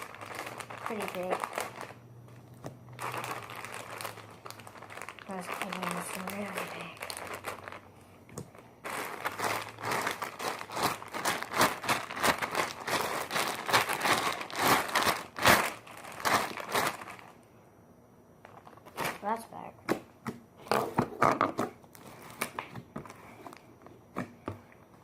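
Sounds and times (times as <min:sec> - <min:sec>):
slime crackling and popping: 0:00.0 - 0:02.0, 0:02.8 - 0:07.8, 0:08.4 - 0:17.2.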